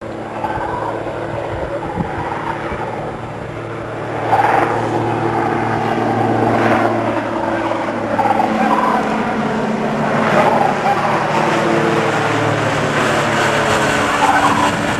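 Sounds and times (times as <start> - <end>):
ultralight airplane engine droning: 0.0 - 14.9
crane calls over loudspeaker: 7.5 - 9.5, 10.2 - 11.8, 13.8 - 14.9.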